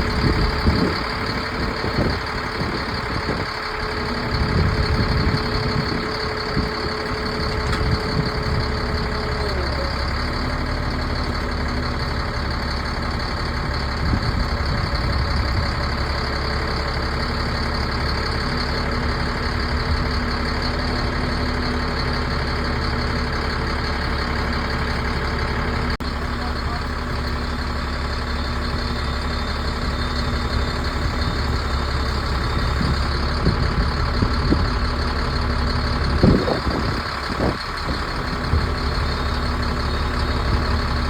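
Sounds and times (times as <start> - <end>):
diesel truck engine idling: 0.0 - 41.0.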